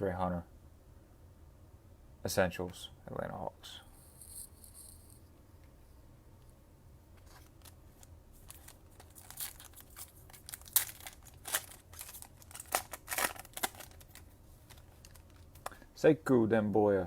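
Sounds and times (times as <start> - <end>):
wrapper crinkling: 7.2 - 15.8.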